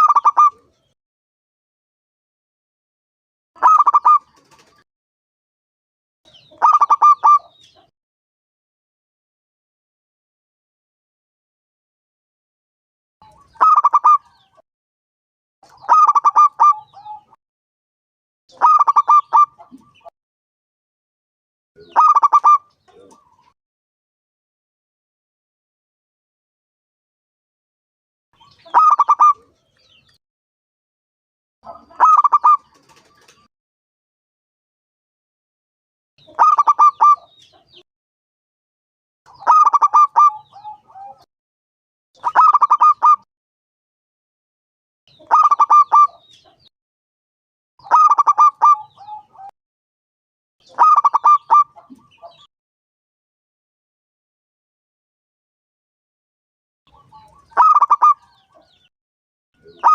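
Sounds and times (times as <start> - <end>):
dove cooing: 15.8 - 17.4, 18.6 - 19.9, 28.7 - 29.6, 31.7 - 33.5, 36.4 - 37.2, 39.4 - 41.2, 45.2 - 46.2, 47.9 - 49.5, 50.8 - 52.1, 57.0 - 58.2.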